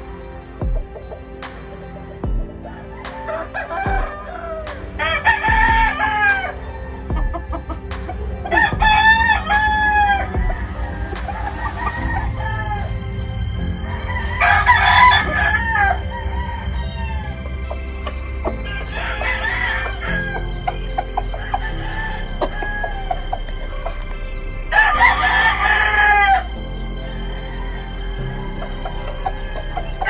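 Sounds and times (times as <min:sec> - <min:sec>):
roosters crowing: 0:02.6 - 0:30.0.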